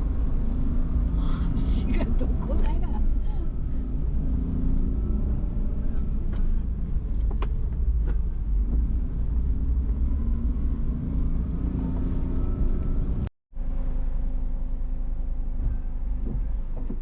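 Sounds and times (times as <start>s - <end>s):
car interior rumble: 0.0s - 17.0s.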